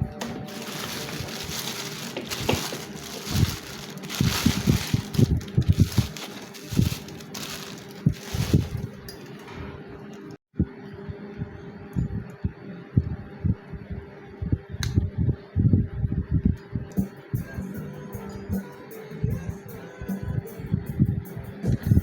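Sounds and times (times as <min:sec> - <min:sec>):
packaging rustling and crinkling: 0:00.1 - 0:09.5.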